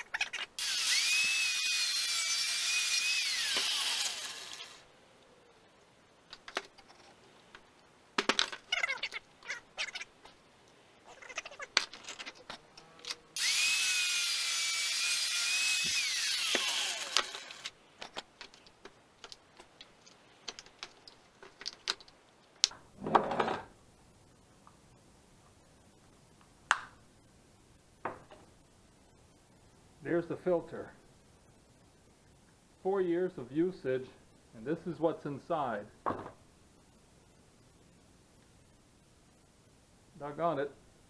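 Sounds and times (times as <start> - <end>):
angle grinder whining: 0.6 - 4.8, 13.4 - 17.7.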